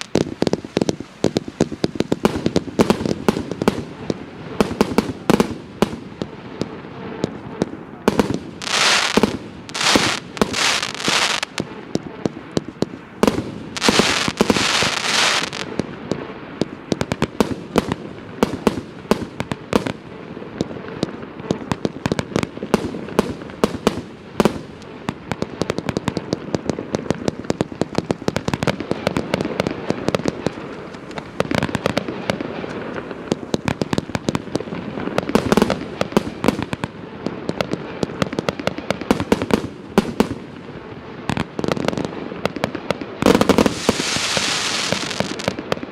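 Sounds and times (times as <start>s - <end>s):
firework hissing bursts: 0.0s - 11.8s, 12.8s - 24.8s, 43.1s - 45.8s
firework launch pops and bangs: 0.0s - 20.0s, 20.6s - 40.6s, 41.2s - 45.9s.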